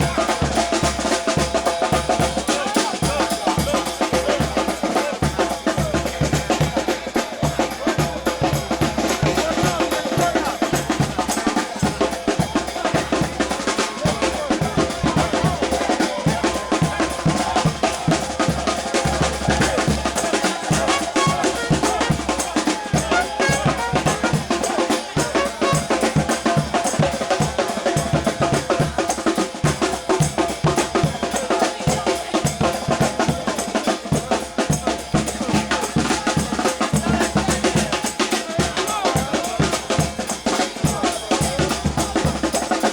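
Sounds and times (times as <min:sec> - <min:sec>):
bass drum and snare drum beat: 0:00.0 - 0:42.9
brass band playing: 0:00.0 - 0:42.9
held horn notes: 0:19.5 - 0:26.2.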